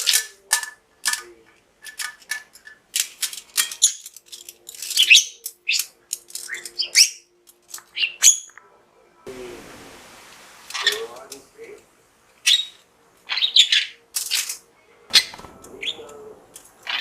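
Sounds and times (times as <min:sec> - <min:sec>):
budgerigar chattering: 0:12.4 - 0:14.0.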